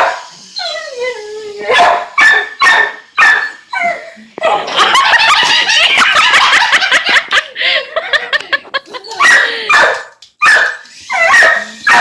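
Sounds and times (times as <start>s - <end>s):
dog barking and yipping: 0.0s - 0.9s, 1.6s - 6.7s, 9.0s - 12.0s.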